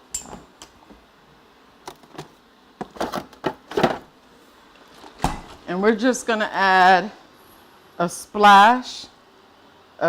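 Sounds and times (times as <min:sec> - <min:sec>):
rustling and scraping: 0:01.9 - 0:05.7.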